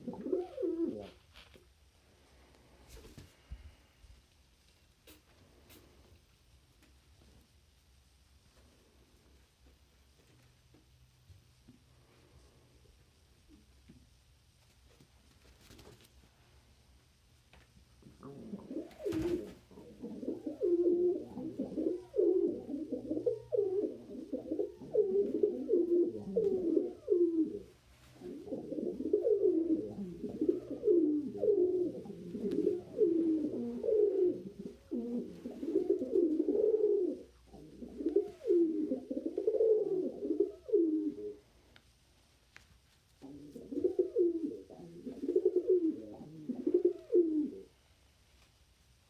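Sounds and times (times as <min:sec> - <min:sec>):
pigeon cooing: 0:00.0 - 0:01.2, 0:18.0 - 0:41.5, 0:43.2 - 0:47.8.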